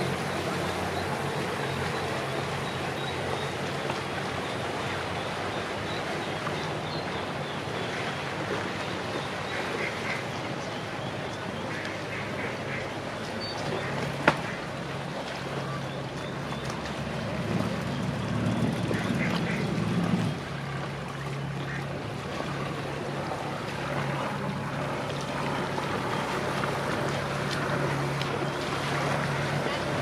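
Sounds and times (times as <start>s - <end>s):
boat engine humming: 0.0s - 30.0s
ducks quacking: 18.9s - 19.7s.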